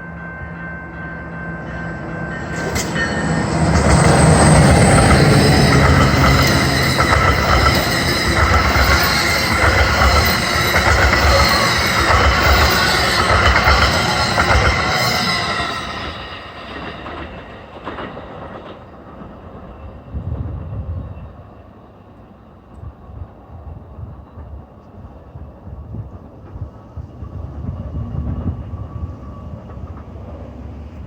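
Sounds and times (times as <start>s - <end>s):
train wheels rumbling on rail: 0.0s - 31.0s
high-pitched wheel squeal: 1.8s - 16.9s.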